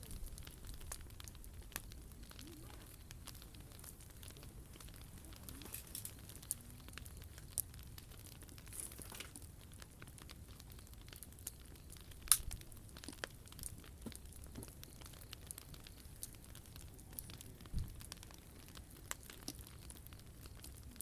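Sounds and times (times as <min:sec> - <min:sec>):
sharp fire pops: 0:00.0 - 0:21.0
wood fire crackling: 0:00.0 - 0:21.0.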